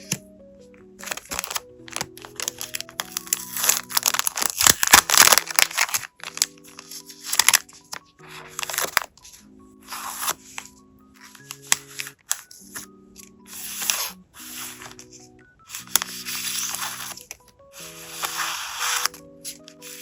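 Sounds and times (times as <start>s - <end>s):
soft background music: 0.0s - 20.0s
plastic pack crinkling and rustling: 1.0s - 9.2s, 13.5s - 20.0s.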